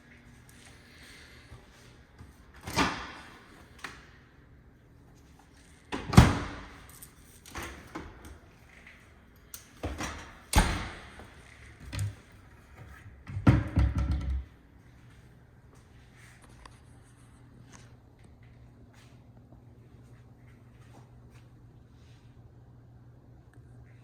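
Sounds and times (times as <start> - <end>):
doors opening and shutting: 2.4 - 4.1, 5.8 - 14.5.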